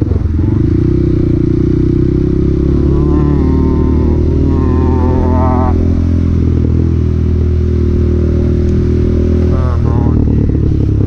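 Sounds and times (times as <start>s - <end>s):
motorcycle engine running: 0.0s - 11.0s
wavering higher tone: 2.6s - 6.3s.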